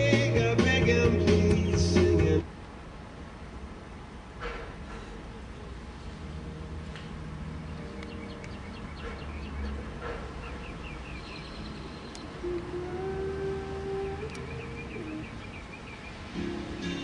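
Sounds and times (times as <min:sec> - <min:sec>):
small bird chirping: 0:07.7 - 0:12.6, 0:14.1 - 0:16.3
held musical note: 0:12.4 - 0:15.2.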